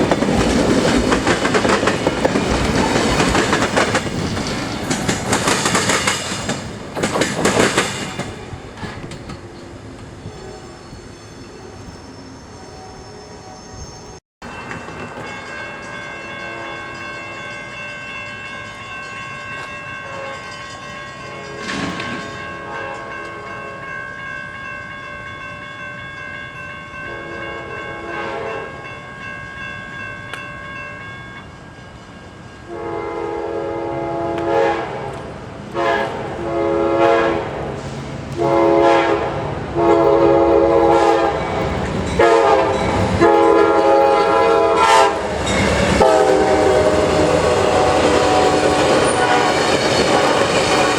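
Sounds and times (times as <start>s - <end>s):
steady high ringing: 9.5s - 32.8s
locomotive horn blasts: 22.5s - 23.5s, 27.1s - 28.7s, 32.7s - 41.6s, 42.2s - 50.6s.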